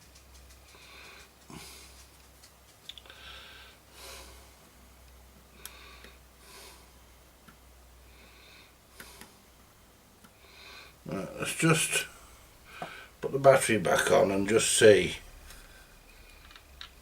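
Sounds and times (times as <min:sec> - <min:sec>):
low steady hum: 0:00.0 - 0:17.0
breathing and sniffing: 0:00.7 - 0:02.2, 0:03.0 - 0:04.6, 0:10.4 - 0:11.0.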